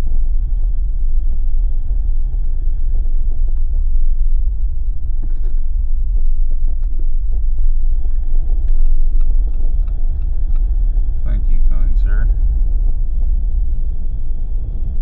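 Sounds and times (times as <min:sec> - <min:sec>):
road and tyre rumble: 0:00.0 - 0:15.0
faint light ticks: 0:08.5 - 0:10.7.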